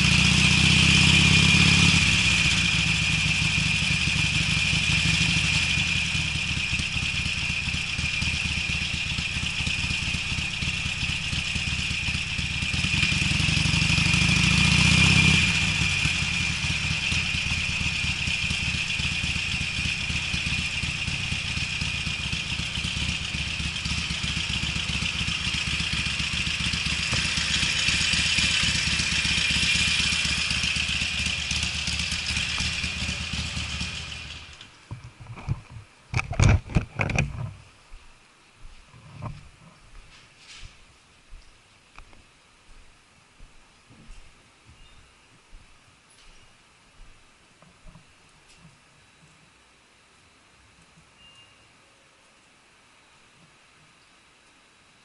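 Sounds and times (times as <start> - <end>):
motorcycle engine being ridden: 0.0 - 37.6.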